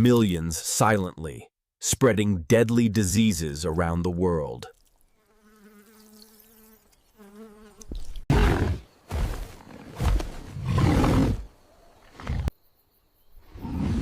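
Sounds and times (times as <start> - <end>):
wavering insect buzz: 5.0 - 8.2
rough animal roars: 8.3 - 12.5, 13.5 - 14.0.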